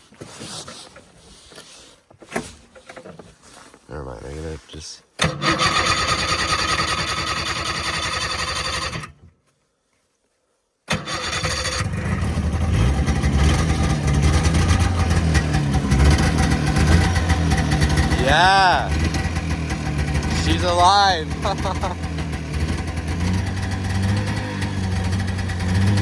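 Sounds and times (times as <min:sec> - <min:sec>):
snowmobile engine starting and running: 0:05.2 - 0:09.2, 0:10.9 - 0:26.0.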